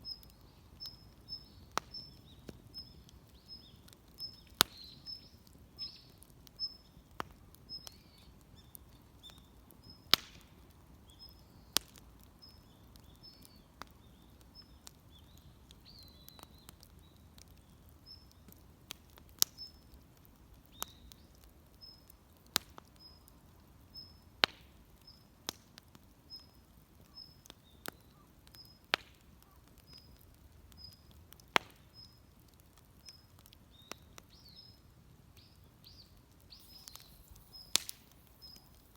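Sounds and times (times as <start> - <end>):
wood fire crackling: 0.0 - 38.9
bird chirping: 35.4 - 38.9.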